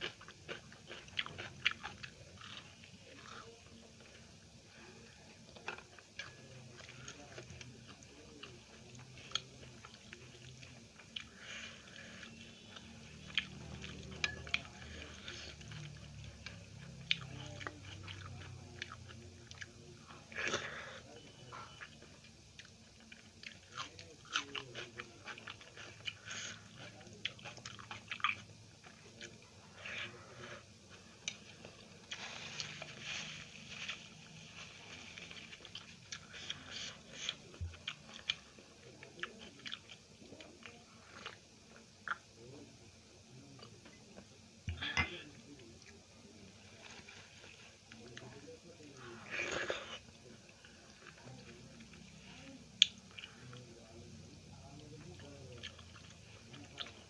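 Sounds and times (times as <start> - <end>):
chewing and biting food: 0.0 - 3.5, 5.5 - 11.4, 12.2 - 20.2, 21.5 - 29.9, 31.2 - 42.3, 54.7 - 57.0.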